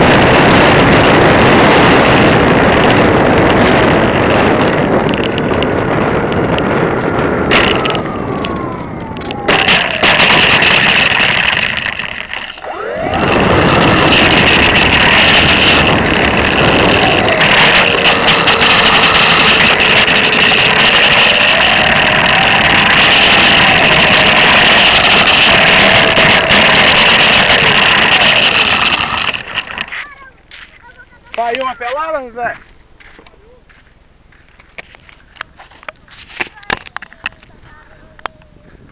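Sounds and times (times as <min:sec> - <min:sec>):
model airplane motor whine: 0:00.0 - 0:29.9
wind rush: 0:00.0 - 0:30.0, 0:36.6 - 0:38.9.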